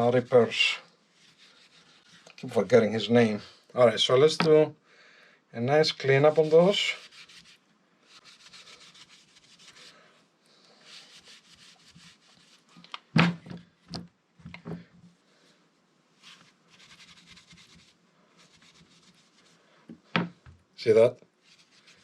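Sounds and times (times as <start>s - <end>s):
scratchy rubbing strokes: 0.0s - 2.6s, 5.9s - 10.0s, 10.8s - 12.8s, 16.2s - 19.7s, 21.4s - 22.0s.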